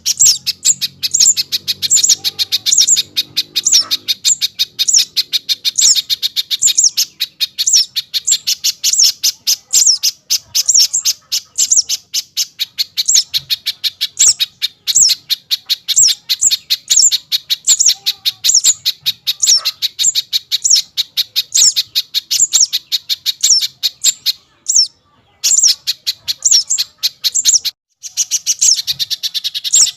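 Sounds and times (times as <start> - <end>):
small bird chirping rapidly: 0.0 - 29.9.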